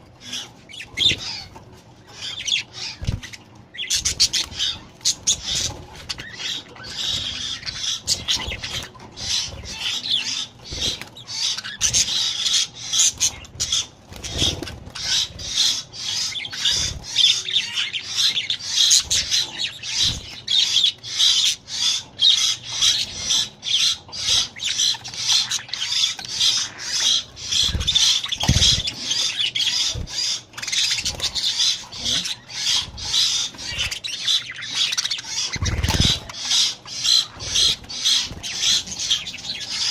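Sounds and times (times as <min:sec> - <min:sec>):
budgerigars chattering and squawking: 0:00.0 - 0:39.9
rustling wing flaps: 0:35.5 - 0:36.3.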